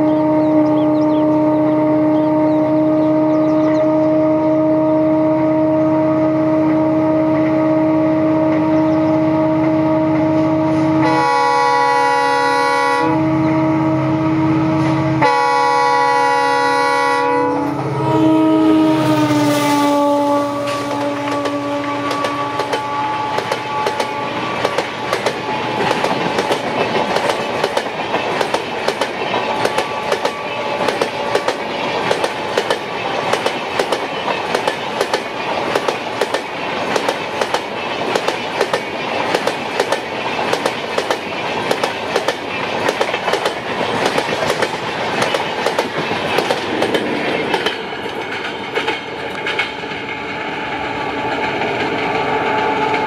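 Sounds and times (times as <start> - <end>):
train wheels clicking over rail joints: 20.6 - 53.0.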